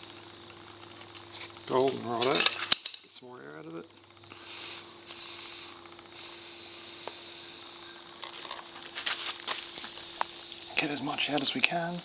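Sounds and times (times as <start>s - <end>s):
air hissing from tyre valve: 4.2s - 12.0s.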